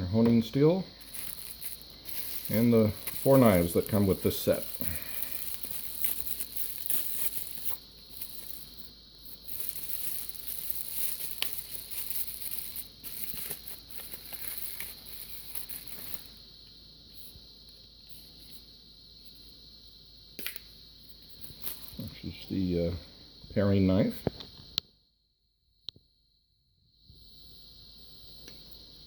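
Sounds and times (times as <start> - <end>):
faint high-pitched whine: 0.0 - 25.0
packaging rustling and crinkling: 1.0 - 16.4, 21.4 - 22.1.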